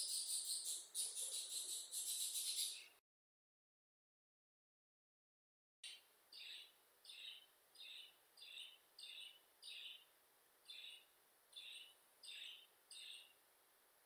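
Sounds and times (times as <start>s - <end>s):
bird chirping: 0.0s - 3.0s, 5.8s - 13.4s.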